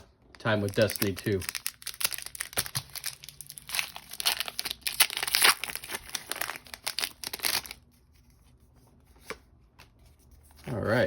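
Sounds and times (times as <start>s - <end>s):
foil wrapper tearing and crinkling: 0.4s - 7.8s.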